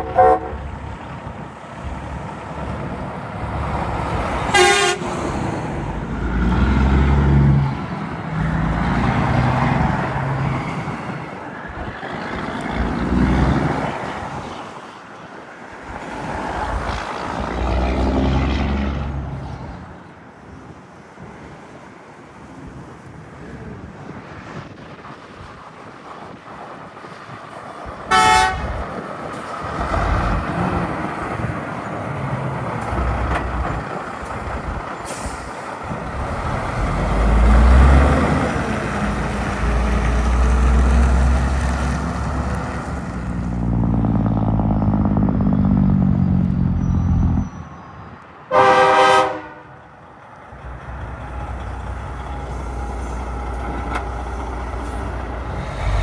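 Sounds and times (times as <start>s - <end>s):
truck horn: 0.0s - 0.9s, 4.4s - 5.5s, 28.1s - 28.9s, 48.5s - 49.9s
trucks passing on road: 0.0s - 56.0s.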